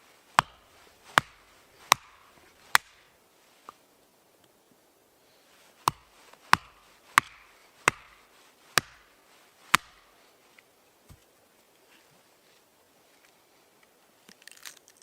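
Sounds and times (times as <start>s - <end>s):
blade chopping strikes: 0.4s - 3.0s, 5.8s - 8.2s, 8.8s - 9.1s, 9.7s - 10.1s.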